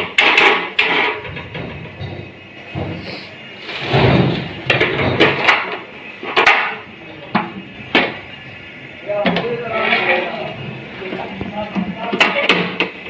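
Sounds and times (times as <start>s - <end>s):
kitchen utensils clattering: 0.0s - 8.2s, 11.0s - 13.0s
scraping noises: 2.8s - 4.5s.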